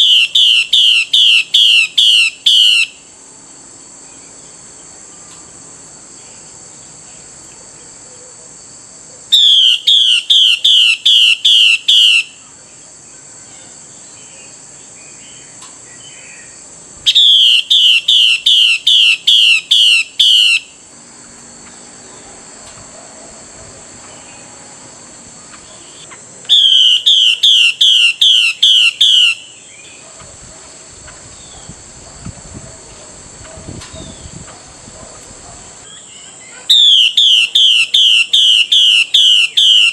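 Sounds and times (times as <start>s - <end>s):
bird giving harsh calls: 0.0s - 3.0s, 9.4s - 12.4s, 17.1s - 20.8s, 25.6s - 30.0s, 35.9s - 39.9s
steady high-pitched buzz: 9.8s - 39.6s.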